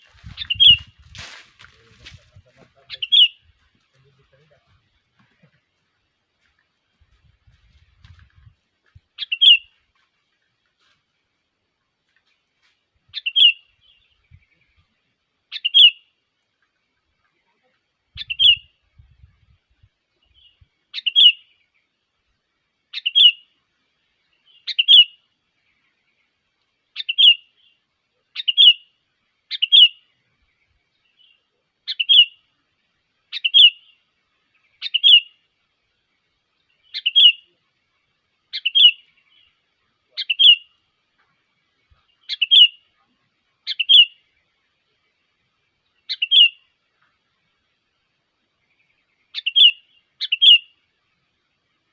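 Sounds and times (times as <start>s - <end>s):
bird chirping phrase: 2.8s - 3.4s, 38.5s - 40.7s.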